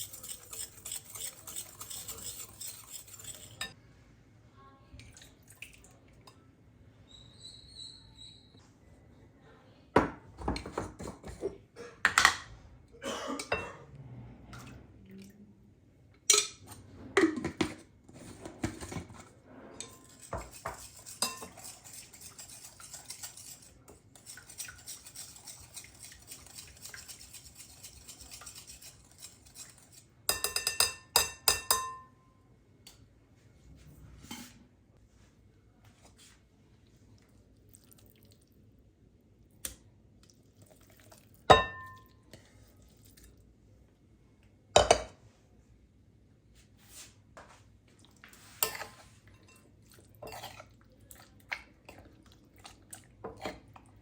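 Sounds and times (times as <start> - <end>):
cookware clattering and clinking: 0.0 - 3.8, 10.0 - 13.8, 16.2 - 32.2, 41.5 - 42.1, 44.8 - 45.2, 48.6 - 50.7.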